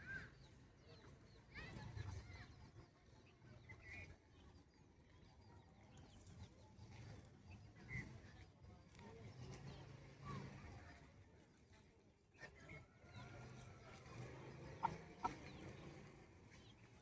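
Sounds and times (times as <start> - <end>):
bird calls: 14.6 - 15.6.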